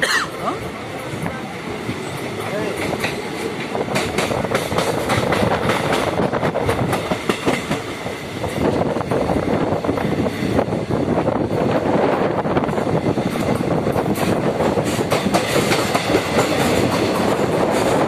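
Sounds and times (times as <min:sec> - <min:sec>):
train rolling rumble: 0:00.0 - 0:18.0
wheels clattering over rails: 0:02.0 - 0:08.1, 0:12.7 - 0:18.0.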